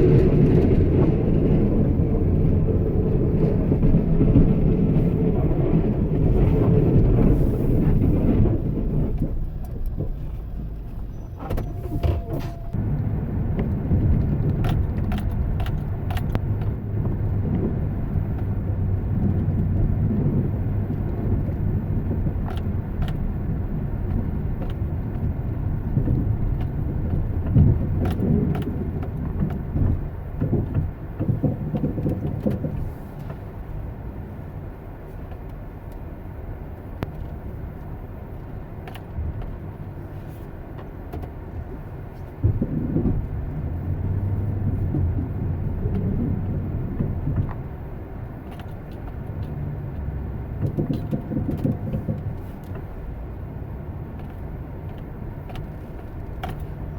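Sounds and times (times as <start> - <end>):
road rumble: 0.0 - 56.9
vehicle engine hum: 0.0 - 56.9
small clicks and knocks: 48.4 - 53.1, 54.1 - 56.9.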